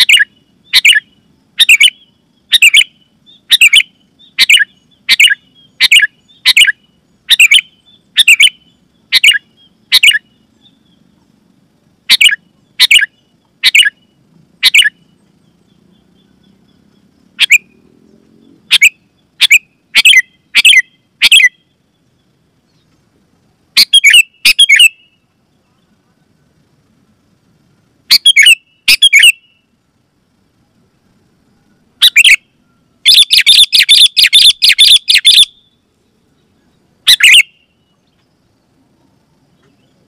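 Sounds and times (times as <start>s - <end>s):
bulbul calling sharp notes: 0.0s - 11.1s, 12.0s - 15.2s, 15.9s - 17.8s, 18.6s - 21.8s, 23.8s - 25.2s, 28.1s - 29.7s, 32.0s - 35.8s, 37.0s - 37.9s.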